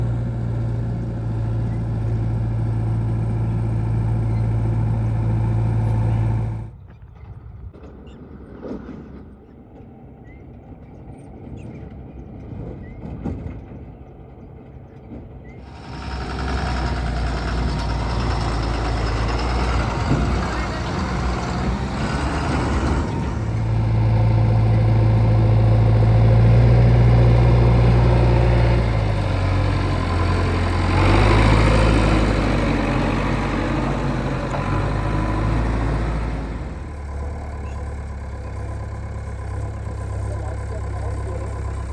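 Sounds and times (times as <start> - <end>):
heavy diesel engine running: 0.0 - 6.7, 15.6 - 41.9.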